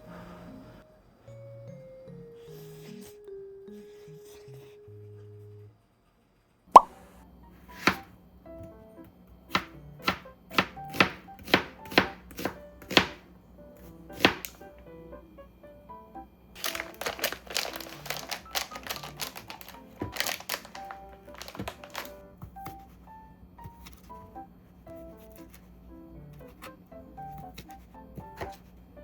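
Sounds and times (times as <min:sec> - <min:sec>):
soft background music: 0:00.0 - 0:05.8, 0:06.8 - 0:29.0
knife chopping on cutting board: 0:07.7 - 0:08.1, 0:09.5 - 0:13.2, 0:13.8 - 0:14.7, 0:26.3 - 0:28.7.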